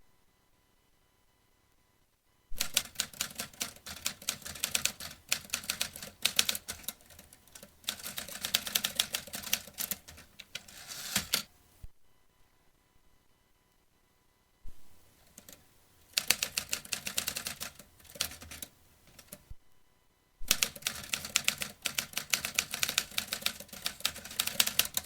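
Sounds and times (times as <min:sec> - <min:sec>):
typewriter key strikes: 0:02.6 - 0:11.5, 0:16.2 - 0:19.4, 0:20.5 - 0:25.0.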